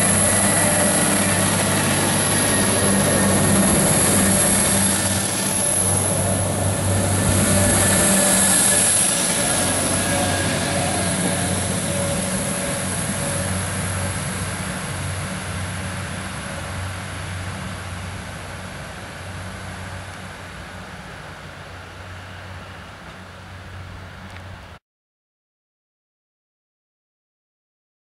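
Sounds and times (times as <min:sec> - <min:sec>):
diesel train engine drone: 0:00.0 - 0:24.8
wheels rushing on rail: 0:00.0 - 0:24.8.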